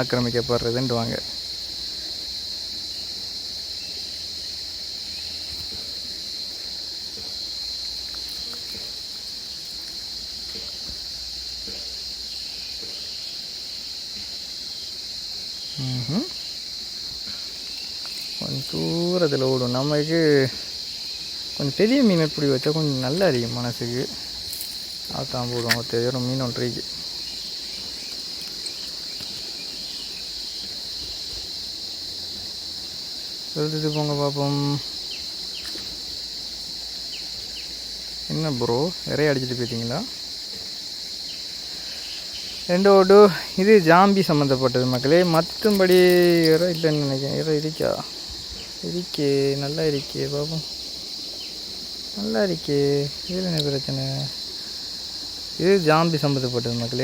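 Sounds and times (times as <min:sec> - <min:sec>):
crickets chirring: 0:00.0 - 0:57.0
faint low background hiss: 0:00.0 - 0:57.0
faint ticks: 0:53.5 - 0:53.8.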